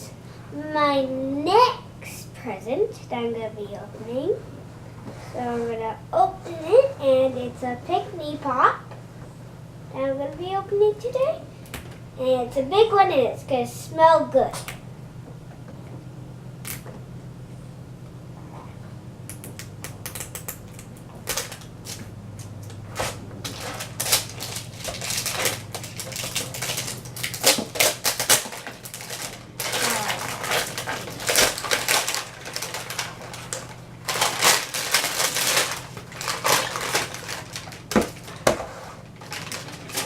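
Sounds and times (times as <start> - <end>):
wrapping crinkling and tearing: 20.1 - 40.0.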